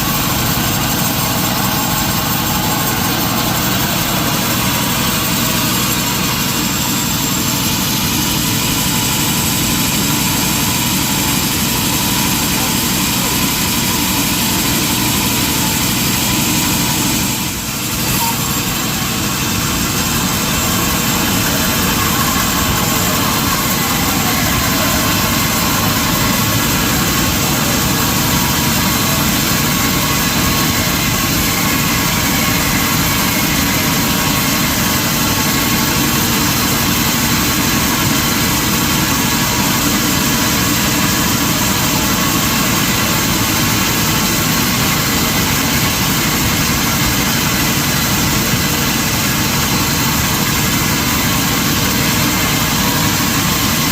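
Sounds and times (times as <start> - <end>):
sawmill machinery drone: 0.0 - 53.9.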